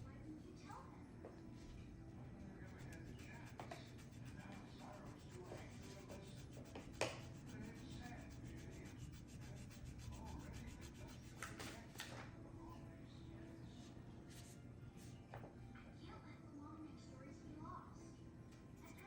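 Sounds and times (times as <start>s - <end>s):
low steady hum: 0.0s - 11.6s.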